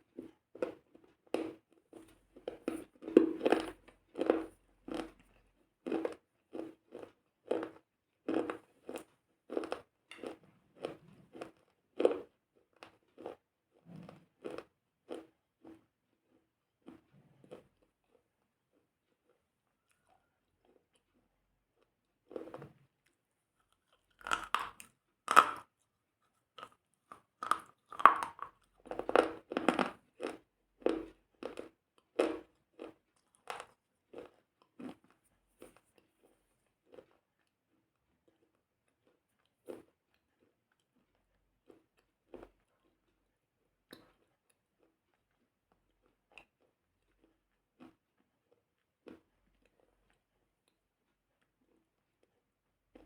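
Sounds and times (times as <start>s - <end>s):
crunchy chewing and biting: 23.7s - 25.7s, 26.5s - 37.5s.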